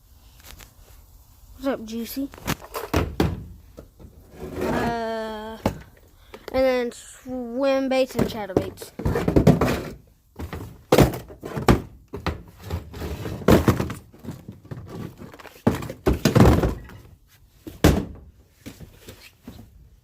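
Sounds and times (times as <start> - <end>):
plastic boxes thunking: 2.5 - 4.9, 5.5 - 6.4, 8.1 - 17.1, 17.7 - 18.3.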